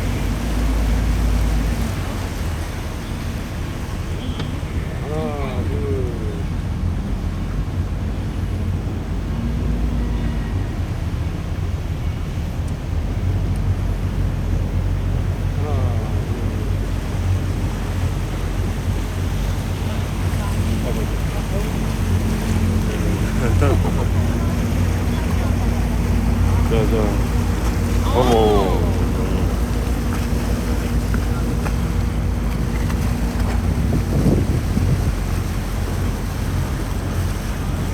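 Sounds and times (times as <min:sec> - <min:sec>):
boat motor droning: 0:00.0 - 0:37.9
water noise: 0:00.0 - 0:37.9
wind buffeting microphone: 0:04.7 - 0:37.9
wind noise: 0:22.2 - 0:36.4.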